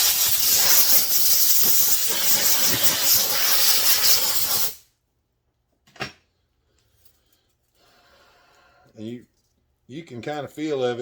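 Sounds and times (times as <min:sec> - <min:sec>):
aerosol can spraying: 0:00.0 - 0:04.8.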